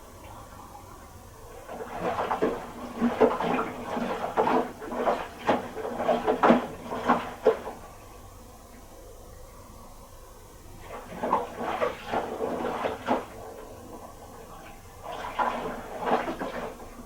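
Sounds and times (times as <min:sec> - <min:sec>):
wet load sloshing in drum: 0:01.2 - 0:08.1, 0:10.5 - 0:17.0.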